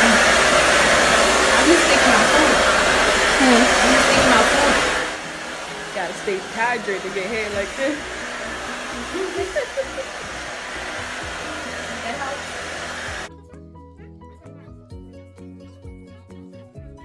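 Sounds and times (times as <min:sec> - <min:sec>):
hair dryer blowing: 0:00.0 - 0:13.3.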